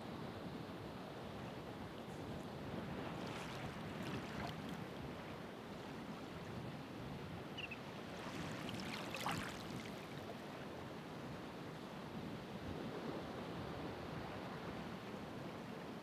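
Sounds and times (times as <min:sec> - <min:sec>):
ocean waves breaking: 0:02.7 - 0:04.8, 0:07.6 - 0:10.2
wave splashes: 0:02.8 - 0:04.9, 0:08.0 - 0:10.5.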